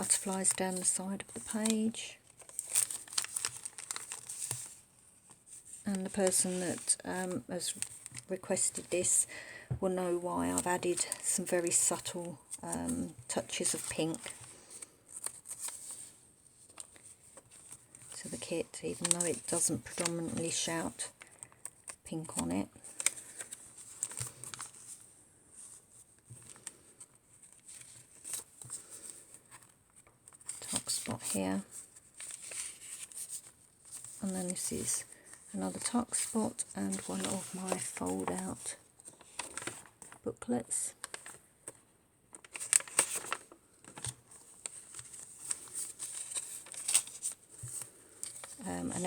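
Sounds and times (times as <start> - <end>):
paper pages rustling and tapping: 0.0 - 8.9, 10.4 - 40.2, 41.0 - 49.0.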